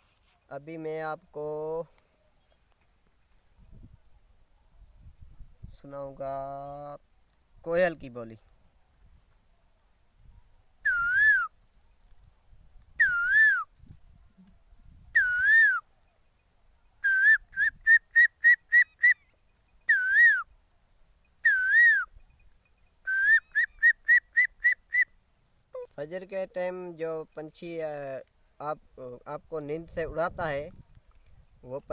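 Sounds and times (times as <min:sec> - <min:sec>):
man whistling bird call: 0:10.8 - 0:11.5, 0:13.0 - 0:13.7, 0:15.1 - 0:15.8, 0:17.0 - 0:20.5, 0:21.4 - 0:22.1, 0:23.0 - 0:25.1.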